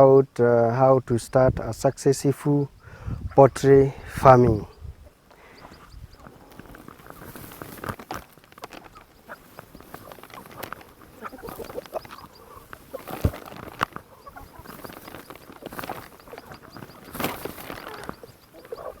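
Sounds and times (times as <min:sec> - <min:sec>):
chickens clucking: 0:01.2 - 0:19.0.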